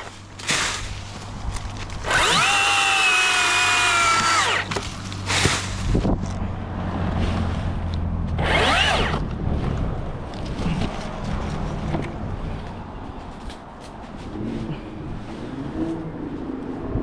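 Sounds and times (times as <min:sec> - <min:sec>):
chainsaw revving: 0:02.0 - 0:05.6, 0:08.4 - 0:09.2.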